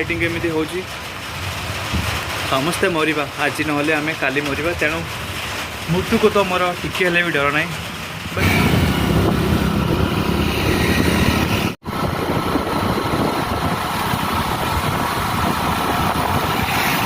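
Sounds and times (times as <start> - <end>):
road noise: 0.0 - 17.0
rushing wind: 0.0 - 17.0
motorcycle engine: 8.4 - 17.0.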